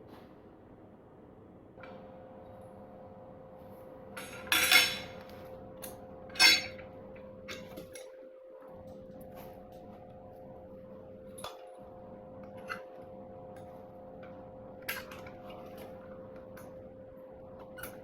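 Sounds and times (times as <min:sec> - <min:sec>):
faint steady hum: 0:00.0 - 0:18.0
metal parts clinking and clattering: 0:04.2 - 0:05.2, 0:06.4 - 0:06.8.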